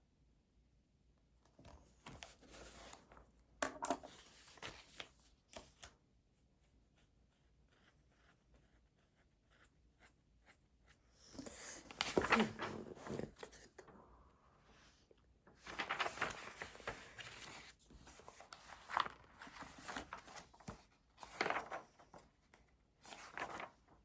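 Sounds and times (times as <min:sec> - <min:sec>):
pen scratching on paper: 0:06.6 - 0:11.0.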